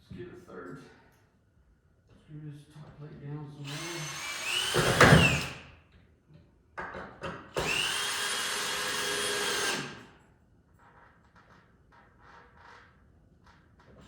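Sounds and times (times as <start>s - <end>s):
power drill driving screws into wood: 3.7s - 5.7s, 7.5s - 10.2s.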